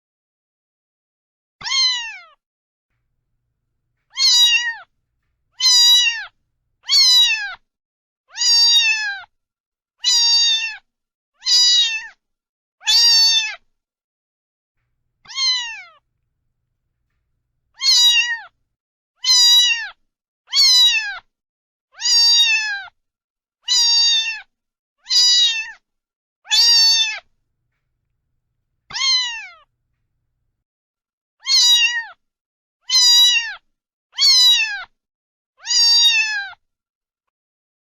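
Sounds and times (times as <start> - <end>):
cat meowing: 1.6 - 2.2, 4.1 - 4.9, 5.5 - 7.6, 8.4 - 9.2, 15.2 - 16.0, 17.0 - 18.5, 19.2 - 19.9, 20.5 - 21.2, 25.1 - 25.7, 28.9 - 29.6, 31.4 - 32.1, 32.9 - 33.6, 34.2 - 34.6, 35.6 - 36.4.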